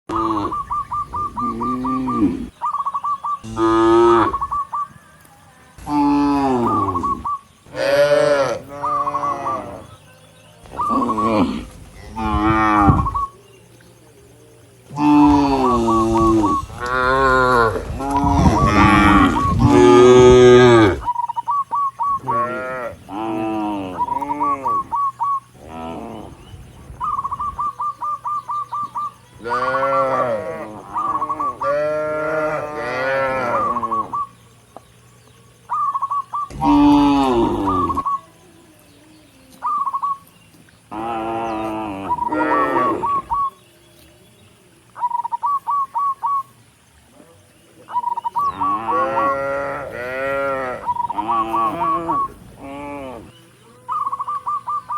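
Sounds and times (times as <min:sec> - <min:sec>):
cattle mooing: 0:03.4 - 0:04.4, 0:07.7 - 0:09.9, 0:14.9 - 0:21.1, 0:29.4 - 0:30.8, 0:31.5 - 0:33.9, 0:36.5 - 0:38.0, 0:40.9 - 0:43.2, 0:48.6 - 0:53.3.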